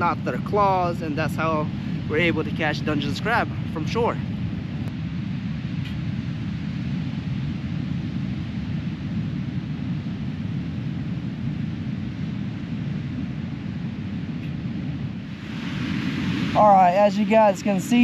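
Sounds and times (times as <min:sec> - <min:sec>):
wind buffeting microphone: 0:00.0 - 0:18.0
breaking surf hiss: 0:15.3 - 0:18.0.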